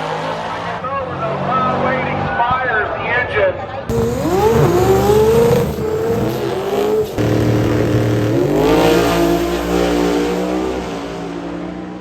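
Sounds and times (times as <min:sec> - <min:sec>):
car engine at full throttle: 0:03.9 - 0:12.0.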